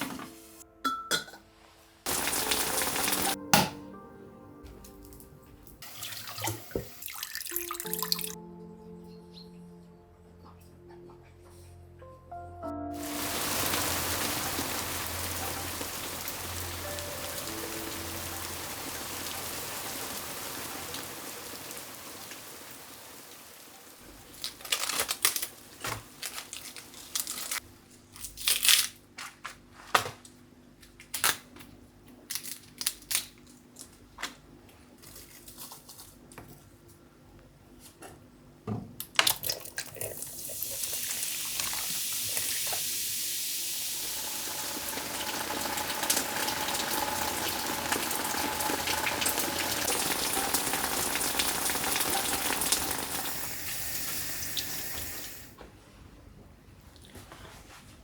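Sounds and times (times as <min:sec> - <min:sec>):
tap running into a sink: 0:06.0 - 0:07.2
crinkles and clicks of handling: 0:24.1 - 0:38.1.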